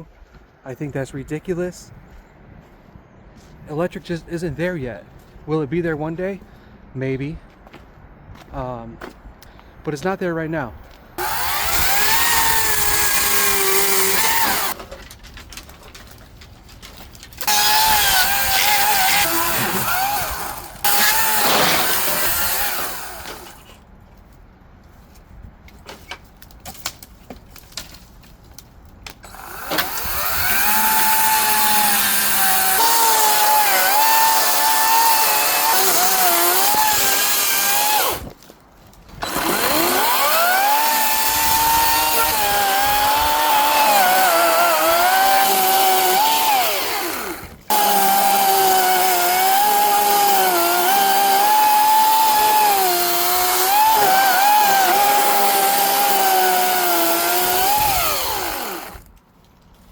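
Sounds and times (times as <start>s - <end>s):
electric chainsaw cutting brush: 11.2s - 14.8s, 17.4s - 23.6s, 29.3s - 38.3s, 39.2s - 59.1s.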